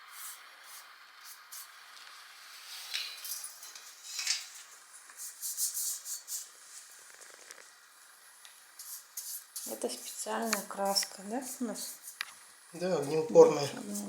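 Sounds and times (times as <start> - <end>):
light metallic clinks and rattles: 2.9 - 4.5.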